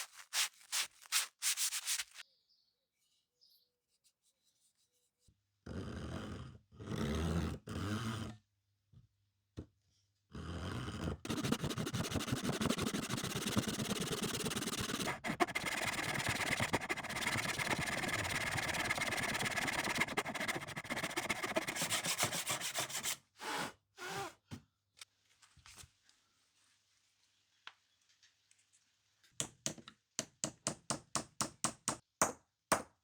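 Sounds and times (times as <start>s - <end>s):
short scrapes: 0.0s - 2.2s
hand file rasping workpiece: 11.3s - 23.2s.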